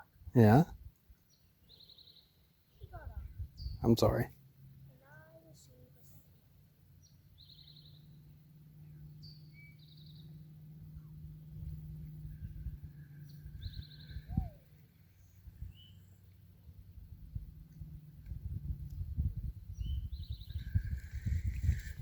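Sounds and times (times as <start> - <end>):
small birds trilling: 1.2 - 4.2, 6.9 - 16.4, 19.7 - 22.0
steady low hum: 3.0 - 22.0.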